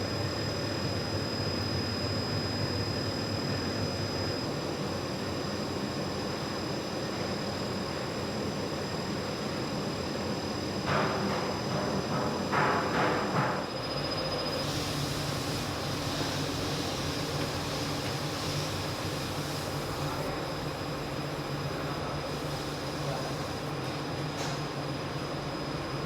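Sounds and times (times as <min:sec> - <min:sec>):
factory machinery hum: 0:00.0 - 0:26.0
thin high whine: 0:13.6 - 0:20.5.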